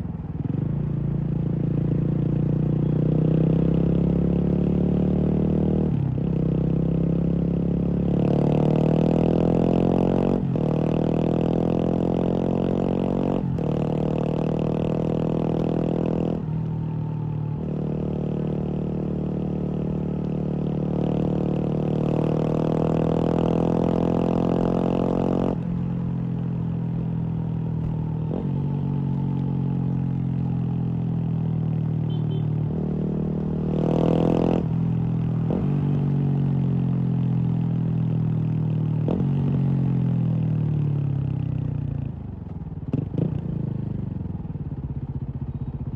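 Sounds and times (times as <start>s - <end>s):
motorcycle engine revving: 2.2s - 41.6s.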